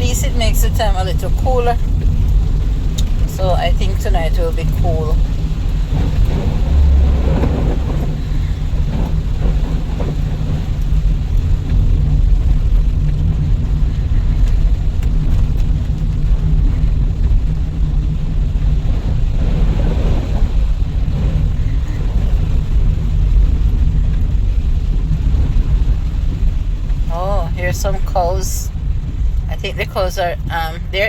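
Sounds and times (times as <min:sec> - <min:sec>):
car rumble from inside cabin: 0:00.0 - 0:31.0
tyre and rain hiss: 0:00.0 - 0:31.0.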